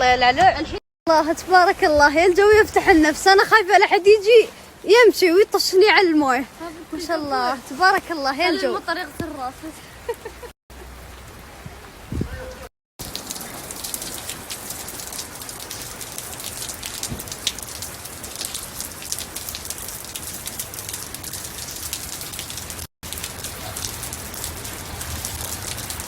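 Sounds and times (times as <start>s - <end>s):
steady rain falling: 1.2s - 26.0s.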